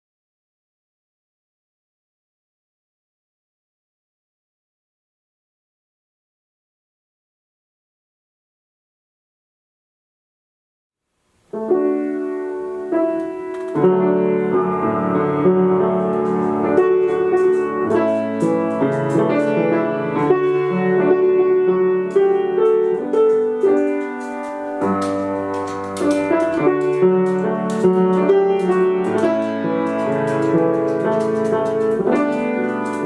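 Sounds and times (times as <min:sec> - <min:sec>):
piano playing slow chords: 0:11.5 - 0:33.0.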